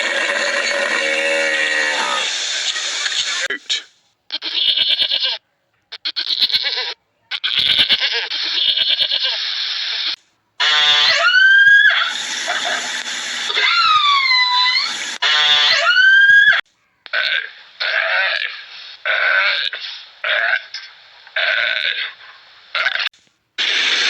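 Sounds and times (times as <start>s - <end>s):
goat bleating: 4.3s - 9.5s, 10.6s - 11.4s, 13.6s - 16.1s.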